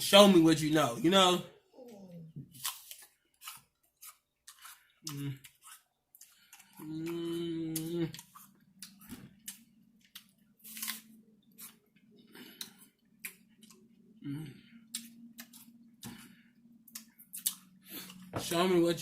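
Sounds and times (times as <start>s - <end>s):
person chewing crunchy food: 2.5s - 18.3s
person humming: 6.8s - 8.2s, 14.2s - 14.6s.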